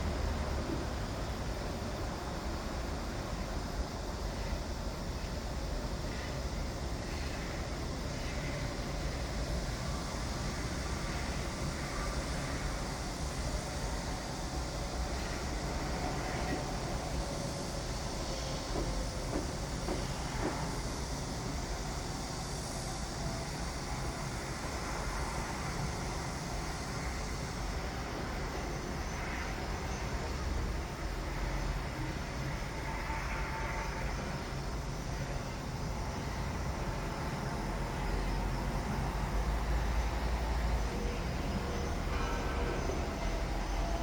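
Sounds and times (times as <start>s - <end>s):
construction machinery rumble: 35.3s - 44.0s.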